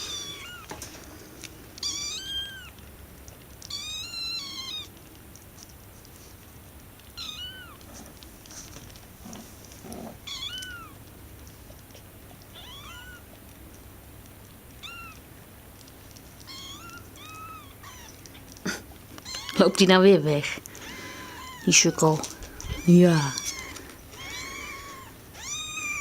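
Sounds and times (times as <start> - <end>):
kittens mewing: 0.0 - 0.8, 1.8 - 2.8, 3.7 - 5.0, 7.1 - 8.0, 9.8 - 11.1, 11.8 - 13.4, 14.7 - 15.4, 16.4 - 26.0.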